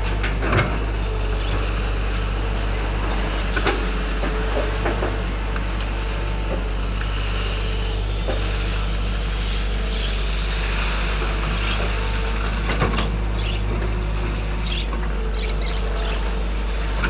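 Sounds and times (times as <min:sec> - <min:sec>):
excavator diesel engine droning: 0:00.0 - 0:17.0.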